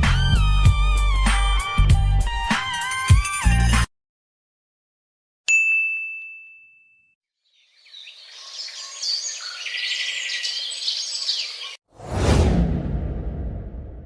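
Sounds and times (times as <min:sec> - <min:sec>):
bright ringing ding: 0:05.5 - 0:07.2
birds chirping: 0:07.4 - 0:11.8.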